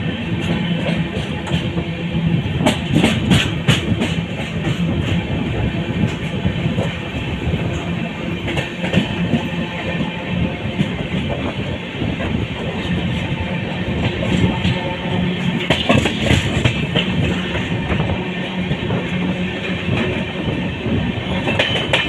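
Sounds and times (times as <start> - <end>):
train rumble from on board: 0.0 - 22.0
wheels clattering over rail joints: 14.0 - 18.0.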